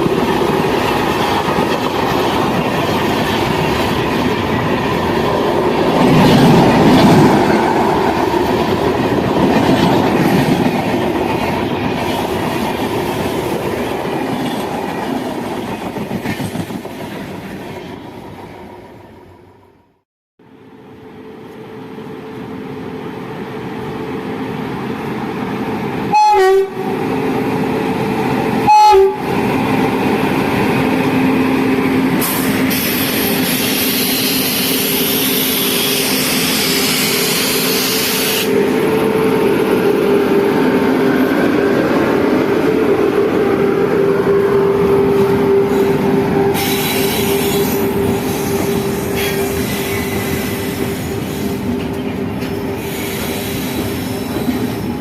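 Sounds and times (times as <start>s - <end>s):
train wheels rolling: 0.0s - 19.0s, 27.0s - 55.0s
train horn blasts: 26.1s - 27.0s, 28.6s - 29.3s.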